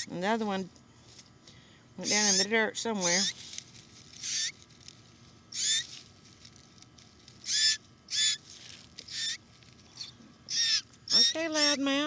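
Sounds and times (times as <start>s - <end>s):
baby bird begging calls: 0.0s - 0.5s, 2.0s - 3.5s, 4.2s - 4.6s, 5.5s - 6.0s, 7.4s - 12.0s.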